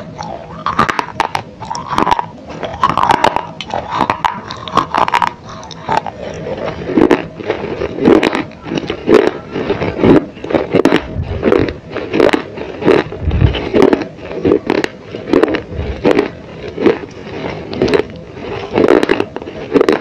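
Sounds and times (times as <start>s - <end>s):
close chewing of crunchy clay: 0.0s - 20.0s.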